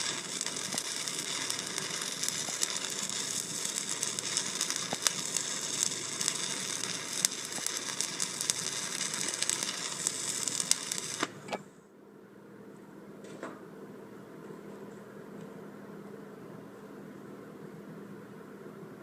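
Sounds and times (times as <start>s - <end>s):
welding arc crackling and popping: 0.0s - 11.6s.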